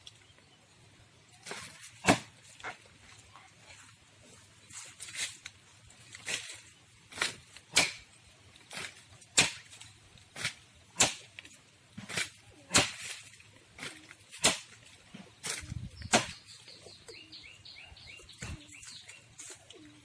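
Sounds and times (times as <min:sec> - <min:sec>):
hand tool chopping tree trunk: 0:01.4 - 0:02.7, 0:06.2 - 0:16.6.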